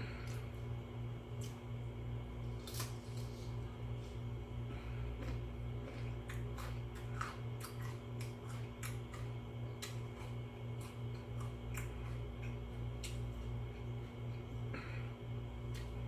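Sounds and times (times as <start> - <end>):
low hum: 0.0 - 16.0
chewing crunchy cucumber: 4.8 - 14.6.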